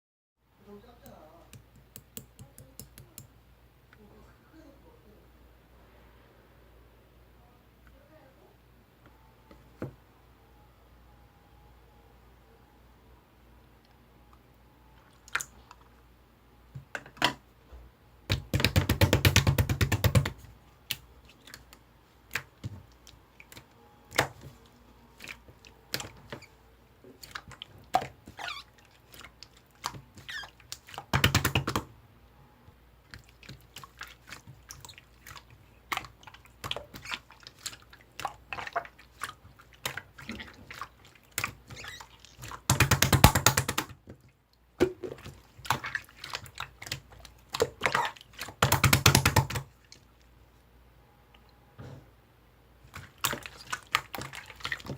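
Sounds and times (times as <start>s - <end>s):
slime squished by hand: 27.1s - 31.9s, 33.1s - 44.0s.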